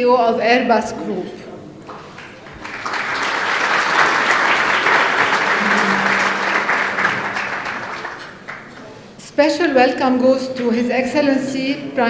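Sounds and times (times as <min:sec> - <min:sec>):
audience applauding: 0:02.0 - 0:09.2.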